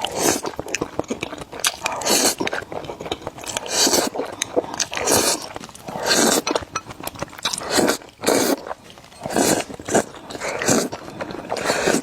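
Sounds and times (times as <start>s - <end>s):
chewing: 0.0s - 12.0s
wet noodle slurps: 3.5s - 6.5s, 7.4s - 12.0s.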